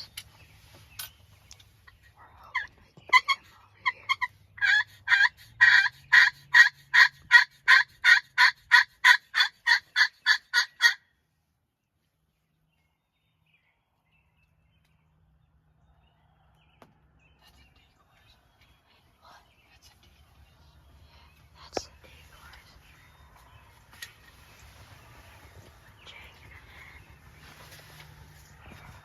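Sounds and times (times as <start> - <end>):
turkey call hen yelps: 2.5 - 11.0.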